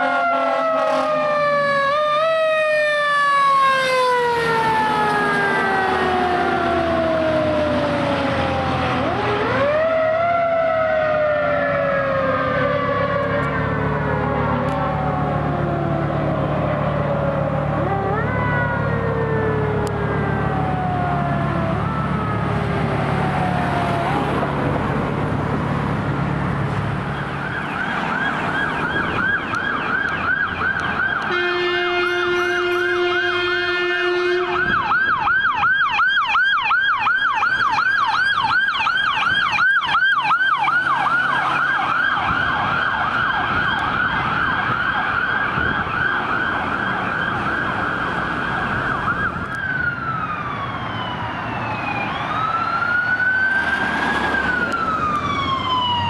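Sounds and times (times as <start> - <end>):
long horn blast: 0.0 - 1.4, 31.2 - 34.8
siren yelp: 0.0 - 26.0, 27.0 - 56.0
siren wail: 0.0 - 56.0.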